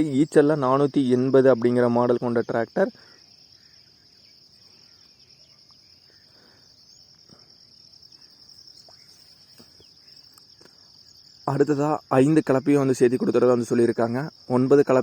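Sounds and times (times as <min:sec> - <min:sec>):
crickets trilling: 0:00.0 - 0:15.0
soft ticks: 0:10.3 - 0:10.8.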